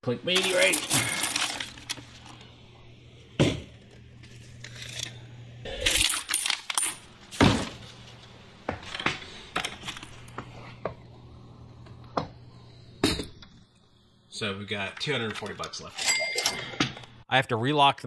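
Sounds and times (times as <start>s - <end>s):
coins rattling in plastic bucket: 0.3s - 2.1s, 5.8s - 7.0s.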